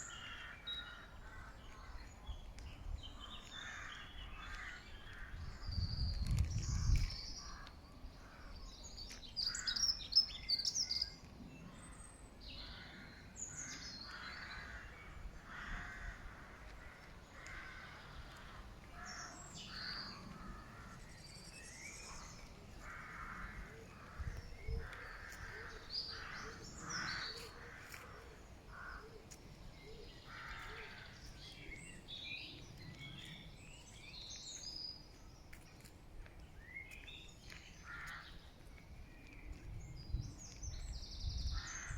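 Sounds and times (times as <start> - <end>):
small birds chirping: 17.0 - 41.9.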